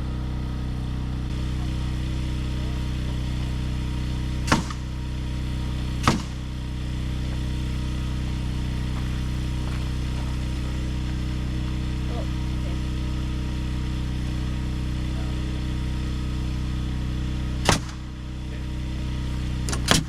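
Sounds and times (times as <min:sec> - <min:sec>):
engine running: 0:00.0 - 0:20.0
sharp knocks: 0:04.5 - 0:04.9, 0:06.0 - 0:06.4, 0:17.6 - 0:18.0.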